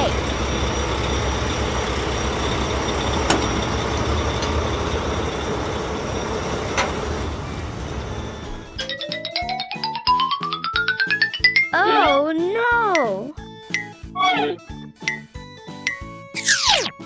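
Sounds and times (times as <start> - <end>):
heavy vehicle engine rumbling: 0.0 - 9.4.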